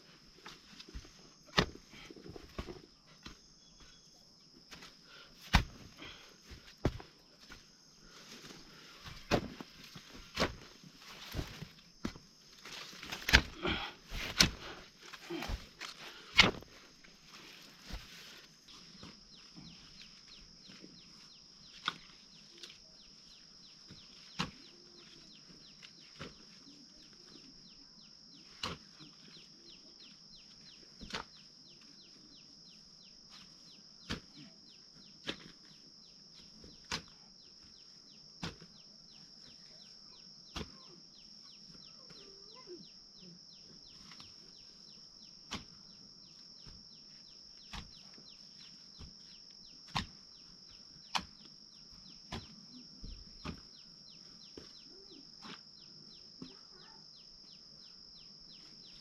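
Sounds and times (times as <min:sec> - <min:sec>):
hoe striking soil: 0:00.8 - 0:03.9, 0:04.7 - 0:07.6, 0:08.5 - 0:16.8, 0:24.3 - 0:24.8, 0:28.6 - 0:28.9, 0:31.0 - 0:31.4, 0:34.0 - 0:34.5, 0:36.4 - 0:37.2, 0:38.4 - 0:38.7, 0:40.5 - 0:40.8, 0:45.4 - 0:45.9, 0:47.6 - 0:50.3, 0:51.0 - 0:53.8.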